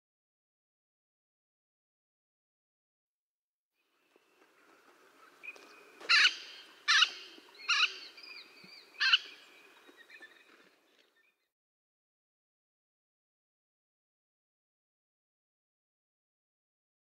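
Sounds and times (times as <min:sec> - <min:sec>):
bird harsh rasping calls: 0:06.1 - 0:10.3.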